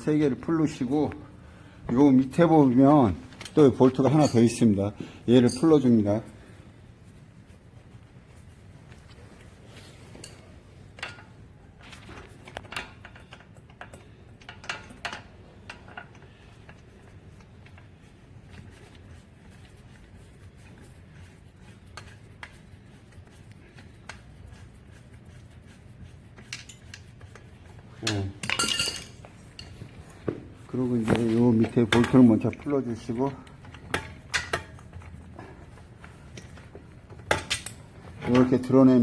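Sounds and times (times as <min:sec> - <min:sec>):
wrench clinking on metal: 0:28.0 - 0:29.8, 0:37.1 - 0:38.8.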